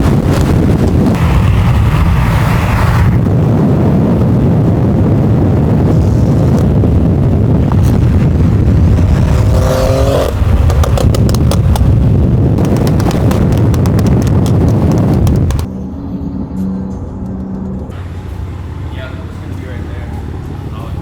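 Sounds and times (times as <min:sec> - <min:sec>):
car engine and road rumble: 0:00.0 - 0:21.0
sharp clicks: 0:10.2 - 0:11.9.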